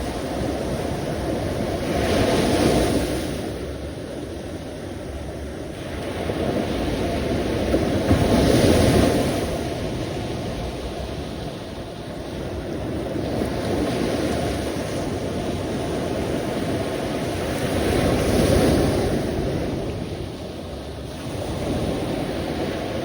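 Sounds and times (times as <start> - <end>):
sea waves washing on shore: 0.0 - 23.0.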